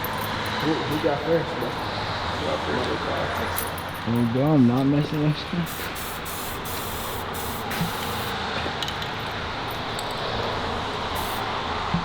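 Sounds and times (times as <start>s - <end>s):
spray can hissing: 5.6s - 8.4s, 11.1s - 11.5s.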